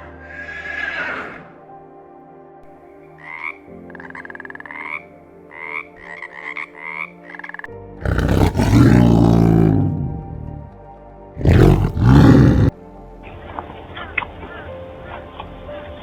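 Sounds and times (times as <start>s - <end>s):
faint background music: 0.0s - 16.0s
big cat roaring: 8.0s - 10.7s, 11.4s - 12.8s.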